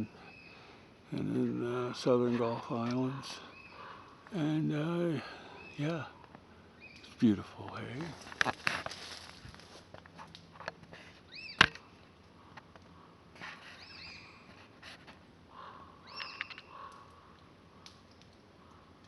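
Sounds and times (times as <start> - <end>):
bird chirping: 0.0 - 0.7, 3.4 - 4.5, 5.4 - 7.2, 11.3 - 11.8, 13.7 - 14.5, 15.6 - 17.0.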